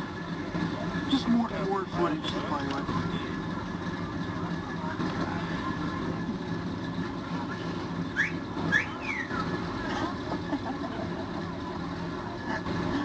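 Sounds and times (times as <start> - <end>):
vehicle engine running: 0.0 - 13.0
whistle-like chirps: 8.2 - 9.4.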